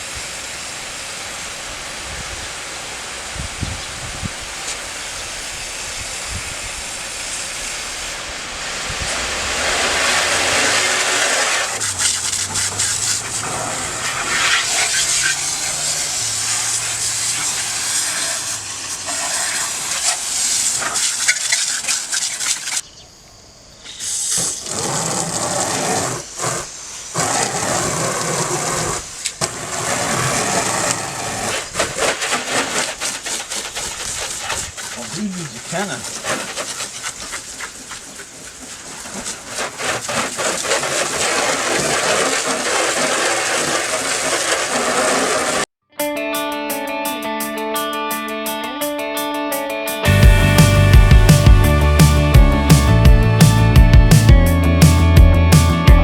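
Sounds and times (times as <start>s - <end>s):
water spraying from hose gun: 0.0s - 22.9s, 23.9s - 45.7s, 50.1s - 55.8s.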